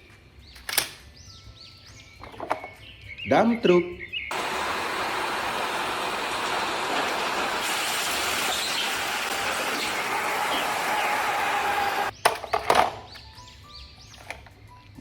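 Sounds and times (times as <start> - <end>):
steady vehicle noise: 4.3 - 12.2.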